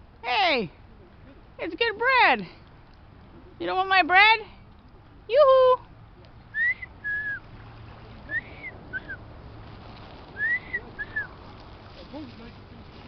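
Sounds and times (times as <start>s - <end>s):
person whistling two-note calls: 6.6s - 7.4s, 10.4s - 11.3s.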